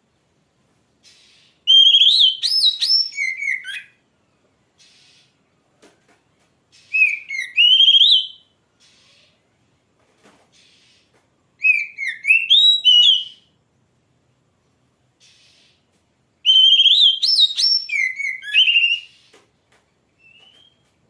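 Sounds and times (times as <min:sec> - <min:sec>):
bird whistling song: 0:01.0 - 0:04.0, 0:06.7 - 0:09.1, 0:11.6 - 0:13.5, 0:16.4 - 0:19.4, 0:20.2 - 0:20.9.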